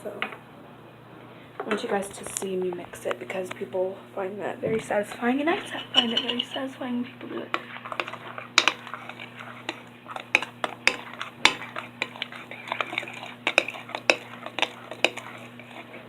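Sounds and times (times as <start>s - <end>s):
spoon stirring slime: 4.9s - 16.0s.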